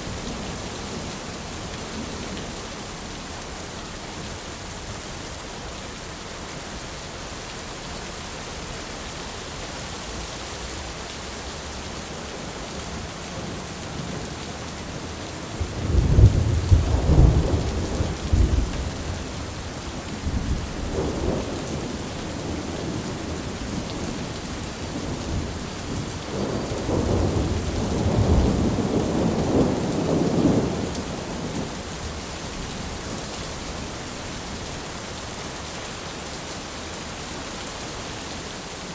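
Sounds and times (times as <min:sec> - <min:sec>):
steady rain: 0:00.0 - 0:38.9
thunder rumbling: 0:15.6 - 0:32.1.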